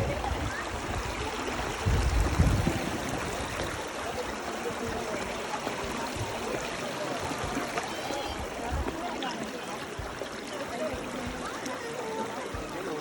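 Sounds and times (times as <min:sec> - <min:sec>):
wind buffeting microphone: 0:00.0 - 0:05.3
river water rushing: 0:00.0 - 0:13.0.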